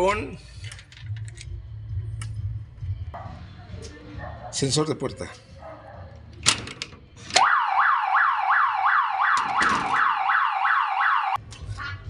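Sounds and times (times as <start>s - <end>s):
alarm siren rising whoop: 7.4s - 11.4s.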